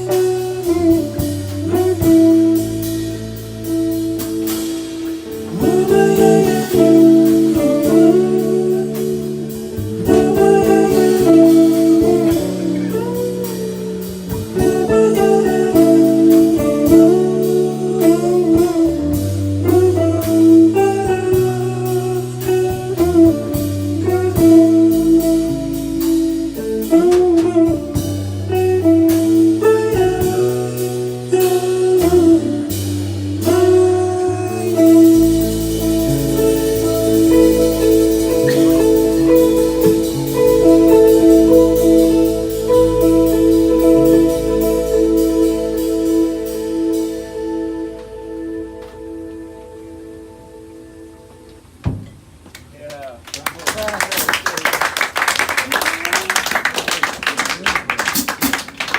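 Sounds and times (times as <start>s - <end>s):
bass line: 0.0s - 52.4s
blues guitar melody: 0.0s - 52.4s.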